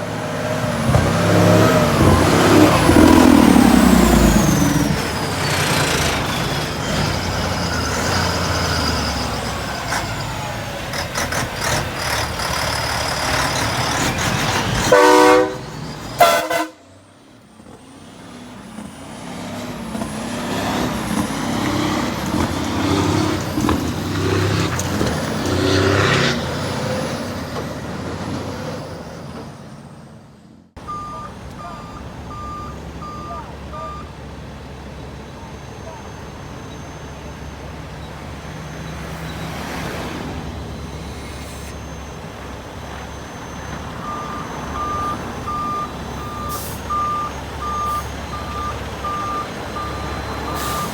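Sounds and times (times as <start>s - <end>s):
heavy trucks passing: 0.0s - 50.9s
truck horn blasts: 14.8s - 17.0s
reversing alarm beeping: 30.8s - 34.2s, 40.8s - 50.9s.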